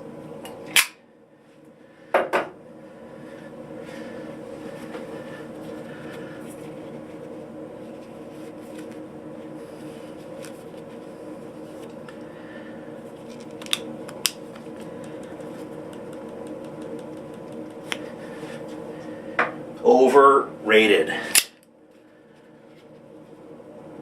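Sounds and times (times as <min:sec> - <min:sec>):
fan humming: 0:00.0 - 0:24.0.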